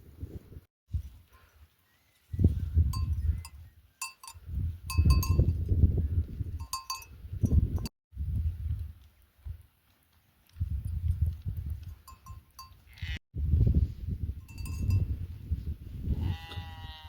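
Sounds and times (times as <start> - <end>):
sheep bells clinking: 2.9 - 5.7, 6.5 - 7.9, 11.8 - 13.2, 14.4 - 15.2.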